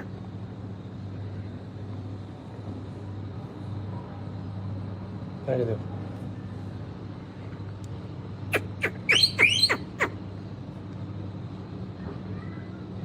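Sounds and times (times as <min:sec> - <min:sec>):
parakeet screeching: 0:08.5 - 0:10.2.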